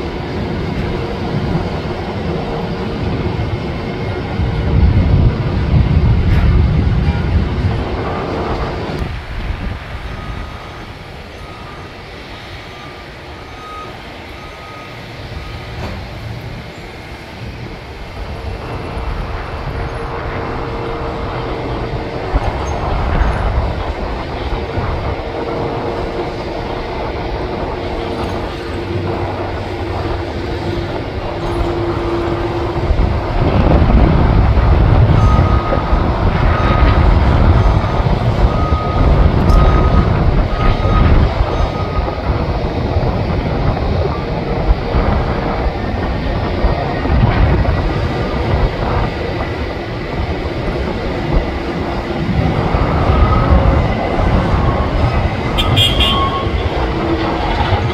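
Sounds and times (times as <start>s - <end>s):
engines whining and rumbling: 0.0s - 57.9s
reversing beeper: 6.2s - 17.0s, 35.0s - 42.9s, 52.0s - 57.9s.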